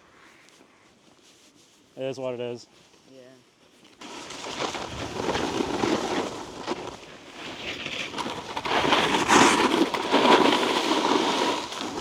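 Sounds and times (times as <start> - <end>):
snowboard scraping icy snow: 4.0 - 12.0.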